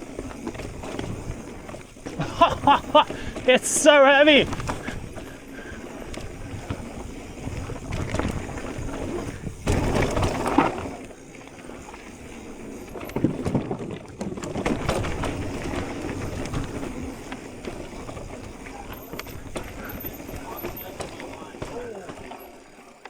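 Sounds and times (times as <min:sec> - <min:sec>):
bike jolting roughly: 0:00.0 - 0:23.0
bike tyres on dirt trail: 0:00.0 - 0:23.0.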